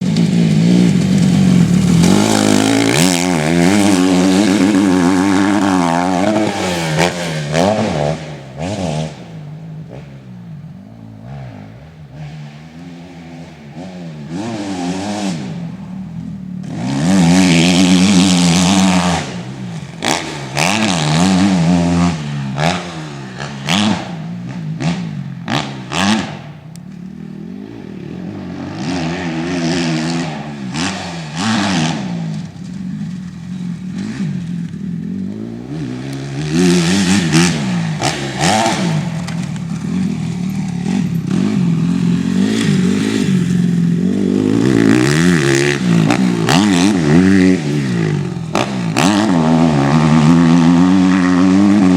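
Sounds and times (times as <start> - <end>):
motocross bike engine revving: 0.0 - 51.9.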